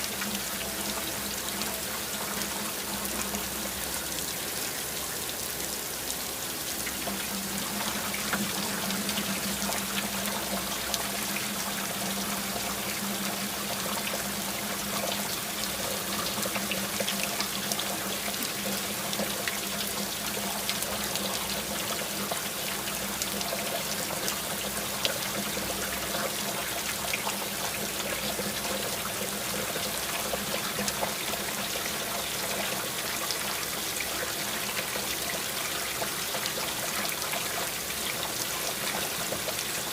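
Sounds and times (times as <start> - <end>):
steady rain: 0.0 - 39.9
water trickling: 0.0 - 39.9.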